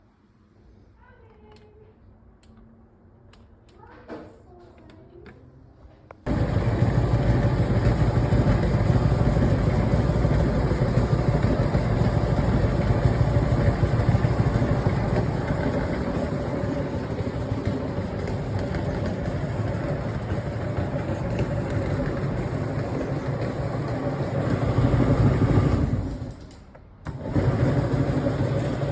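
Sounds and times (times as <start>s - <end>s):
tumble dryer running: 6.3s - 28.9s.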